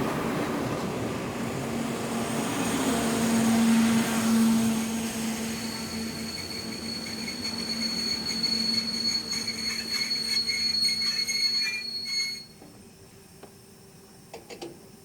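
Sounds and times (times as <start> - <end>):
train wheel squeal: 3.3 - 12.7.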